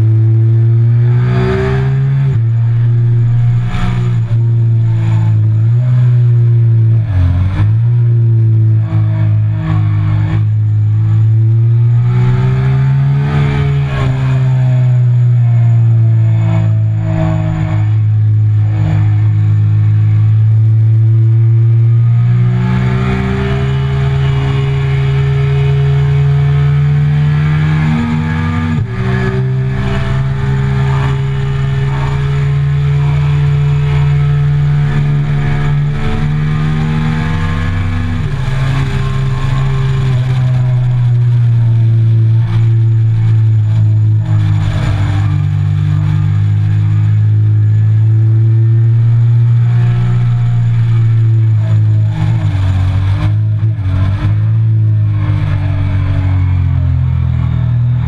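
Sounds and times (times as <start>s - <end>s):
motorcycle engine running hard: 0.0s - 58.0s.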